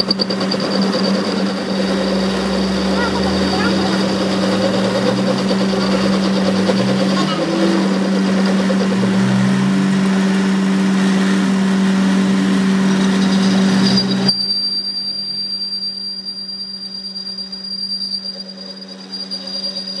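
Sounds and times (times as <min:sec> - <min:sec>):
workshop machine motor humming: 0:00.0 - 0:14.4
thin high whine: 0:00.0 - 0:20.0
loud noisy rush: 0:01.2 - 0:14.2.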